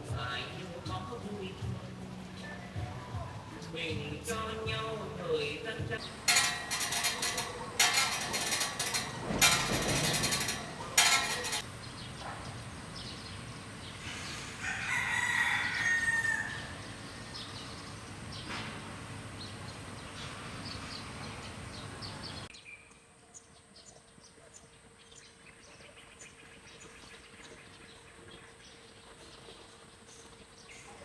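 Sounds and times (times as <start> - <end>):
outdoor background hiss: 0.0 - 31.0.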